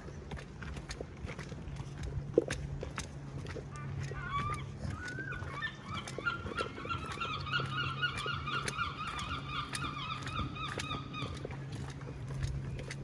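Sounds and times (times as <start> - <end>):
bird honking calls: 4.1 - 11.5.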